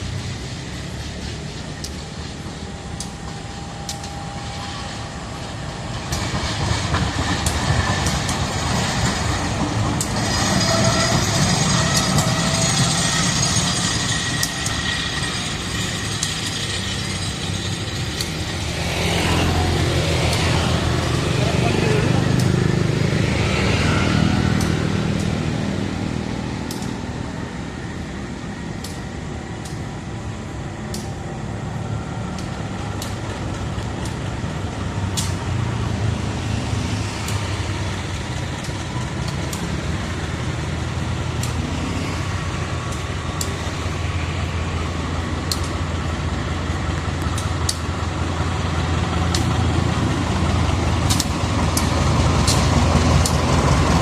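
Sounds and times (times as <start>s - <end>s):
locomotive engine drone: 0.0s - 54.0s
sharp clicks: 26.7s - 27.0s.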